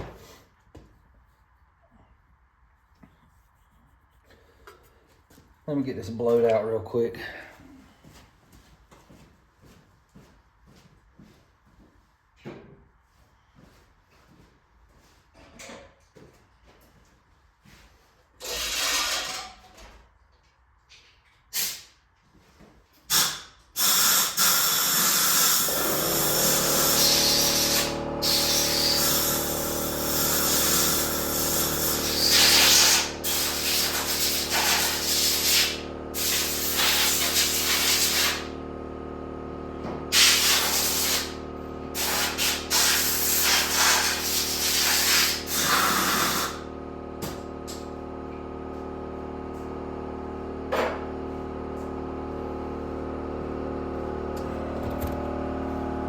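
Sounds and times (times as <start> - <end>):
air blow gun hissing: 23.1 - 38.5, 40.1 - 46.6
air compressor motor humming: 23.1 - 56.0.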